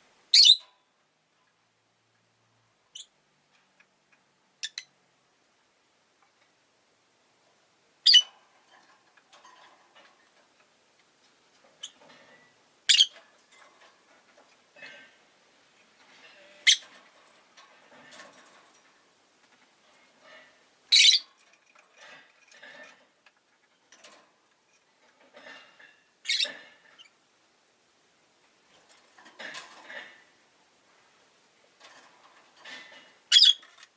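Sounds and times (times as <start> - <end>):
faint bird chatter: 20.9 - 21.3, 25.4 - 27.2.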